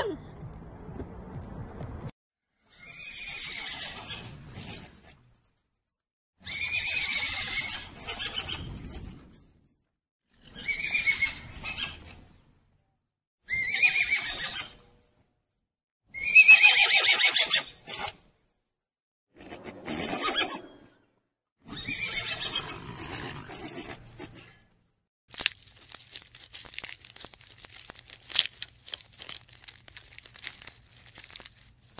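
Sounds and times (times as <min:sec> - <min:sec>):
horse whinnying: 0:02.7 - 0:04.4, 0:06.4 - 0:08.7, 0:13.5 - 0:14.8, 0:16.2 - 0:18.1, 0:21.6 - 0:24.0.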